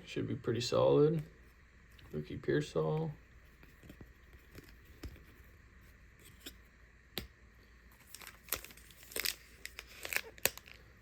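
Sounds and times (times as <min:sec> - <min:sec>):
cards rustling: 0:07.9 - 0:10.9.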